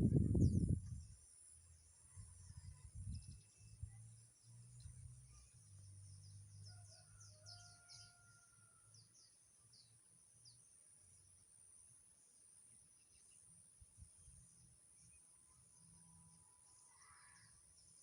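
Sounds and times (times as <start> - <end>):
small birds chirping: 0.0 - 8.4
steady high-pitched hiss: 9.3 - 18.0.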